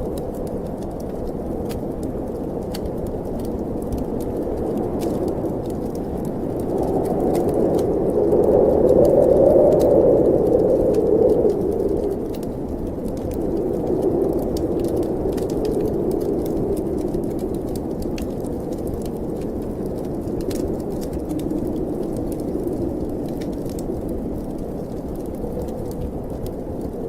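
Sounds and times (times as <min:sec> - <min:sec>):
snowstorm wind blowing: 0:00.0 - 0:27.0
wood fire crackling: 0:00.0 - 0:27.0.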